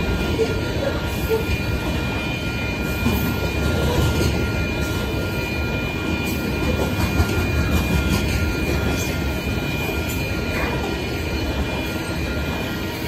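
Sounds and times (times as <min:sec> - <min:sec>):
wheels rumbling on rail: 0:00.0 - 0:13.0.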